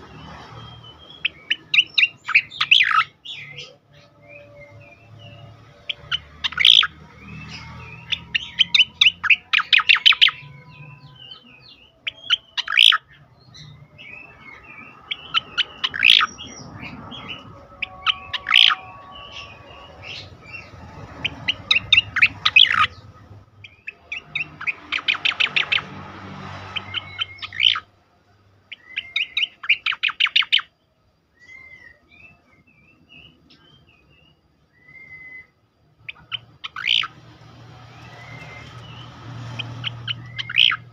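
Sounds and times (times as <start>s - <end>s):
bird chirps: 0.0s - 28.0s, 28.6s - 40.9s
bird singing rapid sharp notes: 0.0s - 28.0s, 28.6s - 30.8s, 31.4s - 40.9s.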